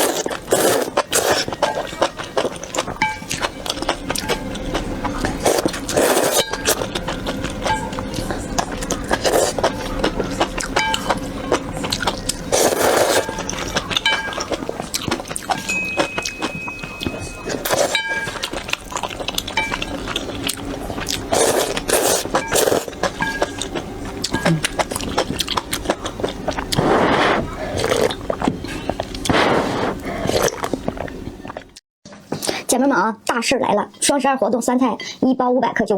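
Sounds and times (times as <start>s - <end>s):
slurping noodles: 0.0s - 4.4s, 5.2s - 14.0s, 17.5s - 18.0s, 20.2s - 31.2s
wet chewing: 0.0s - 31.8s.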